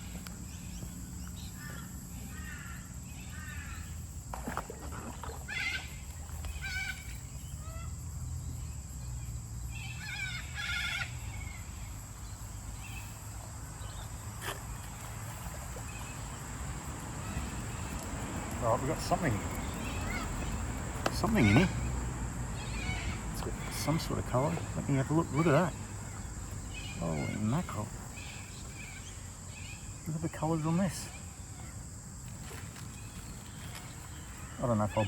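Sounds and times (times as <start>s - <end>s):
birds calling: 9.7s - 35.0s
low outdoor rumble: 11.2s - 29.3s.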